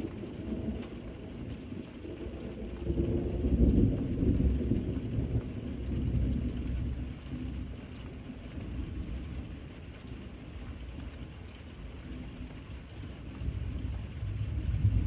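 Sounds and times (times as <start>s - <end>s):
thunder rumble: 0.0s - 9.6s, 13.0s - 15.0s
steady rainfall: 0.0s - 15.0s.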